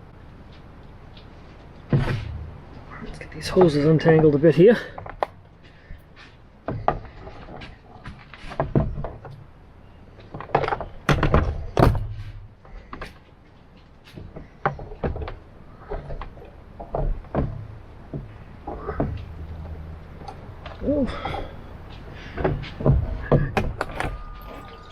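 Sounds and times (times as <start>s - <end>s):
hoses and fittings clattering: 10.2s - 24.9s.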